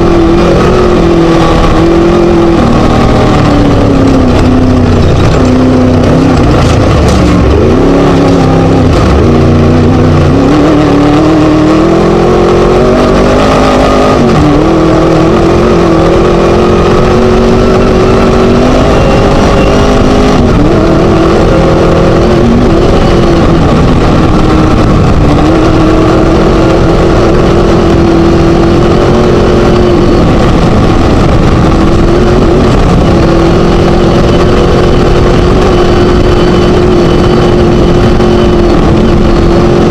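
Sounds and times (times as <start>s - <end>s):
race buggy engine revving: 0.0s - 39.9s
steady rush of noise: 0.0s - 39.9s.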